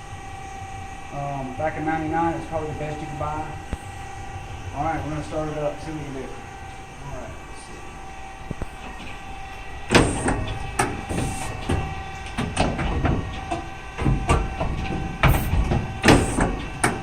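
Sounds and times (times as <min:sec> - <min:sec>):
mechanical clacks and knocks: 0:09.9 - 0:17.0.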